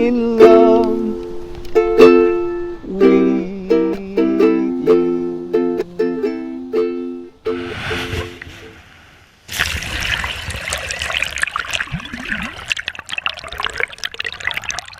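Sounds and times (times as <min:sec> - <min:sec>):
ukulele music: 0:00.0 - 0:08.6
water splashing and trickling: 0:09.4 - 0:14.9.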